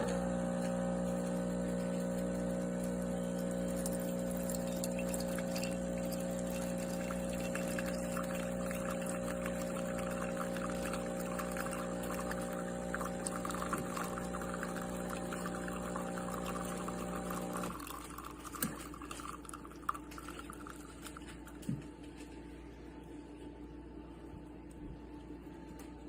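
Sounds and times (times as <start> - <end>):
espresso machine pump humming: 0.0 - 21.2
liquid streaming into cup: 0.0 - 21.5
faint trickle: 1.8 - 21.4.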